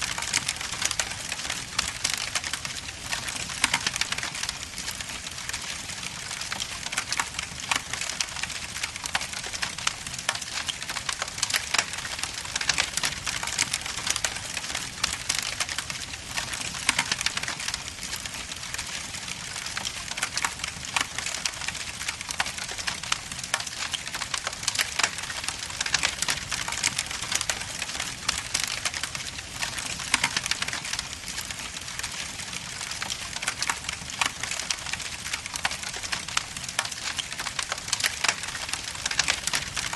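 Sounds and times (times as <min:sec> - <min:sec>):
logs crackling and popping: 0:00.0 - 0:39.9.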